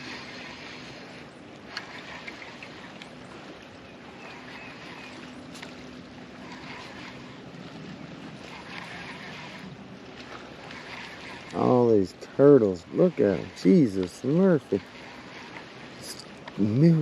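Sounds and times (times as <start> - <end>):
water noise: 0.0 - 17.0.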